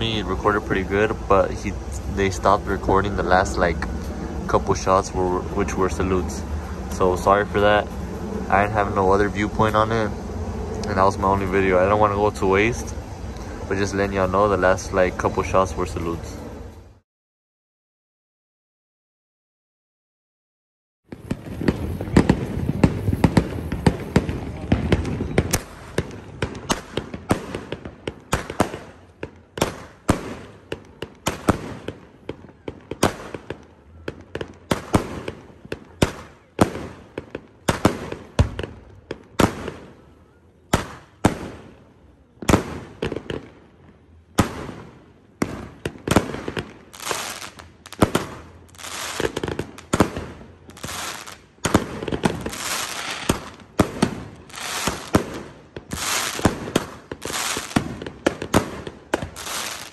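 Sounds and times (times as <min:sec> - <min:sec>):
firework cake bangs: 0:21.1 - 0:40.0, 0:40.7 - 0:41.8, 0:42.4 - 0:43.6, 0:44.4 - 0:59.9.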